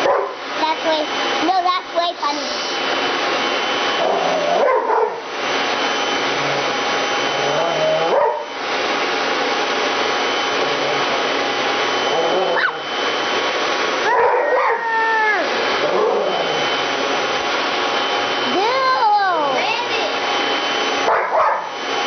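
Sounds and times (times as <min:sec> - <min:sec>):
vacuum cleaner running: 0:00.0 - 0:22.0
dog yelping: 0:08.0 - 0:08.5, 0:12.2 - 0:12.9, 0:14.0 - 0:16.4, 0:21.1 - 0:21.7.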